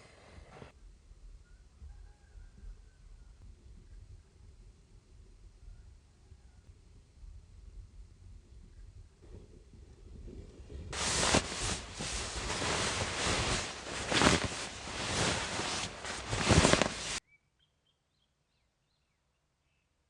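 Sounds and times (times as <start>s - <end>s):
loud rustling: 11.0s - 17.2s
faint bird chirps: 17.2s - 20.0s.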